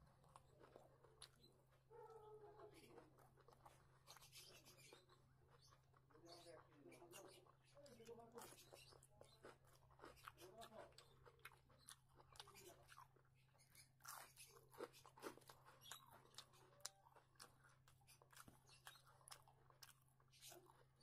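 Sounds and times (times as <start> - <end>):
chewing crisp cucumber: 0.0 - 21.0.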